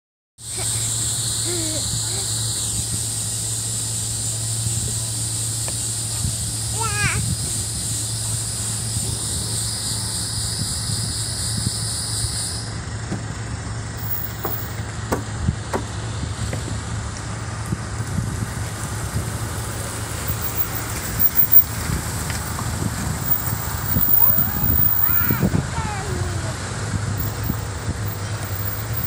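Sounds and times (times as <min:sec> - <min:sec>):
vehicle engine running: 0:00.4 - 0:29.0
short knocks and clicks: 0:14.3 - 0:16.7.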